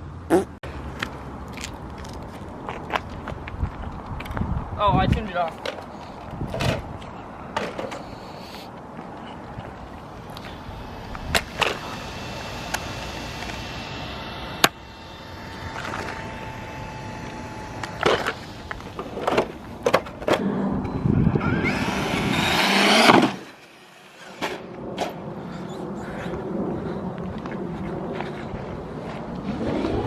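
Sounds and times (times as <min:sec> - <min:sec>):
rc truck motor and tyres: 0:07.8 - 0:24.8
steady motor whine: 0:09.7 - 0:19.8, 0:20.4 - 0:24.4.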